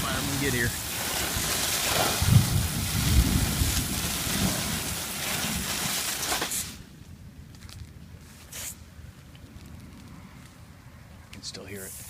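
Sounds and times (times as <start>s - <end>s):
wind buffeting microphone: 0.0s - 6.0s
water spraying from hose: 0.0s - 6.8s.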